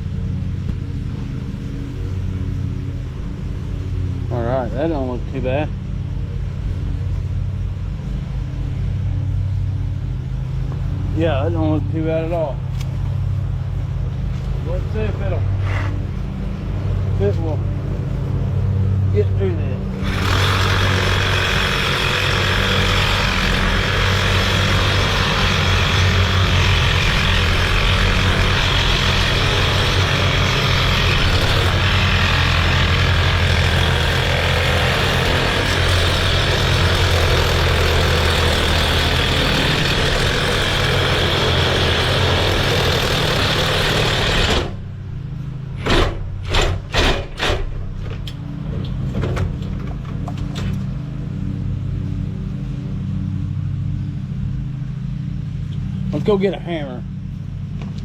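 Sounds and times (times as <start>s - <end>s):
low engine hum: 0.0s - 58.0s
reciprocating saw cutting steel: 19.8s - 45.1s.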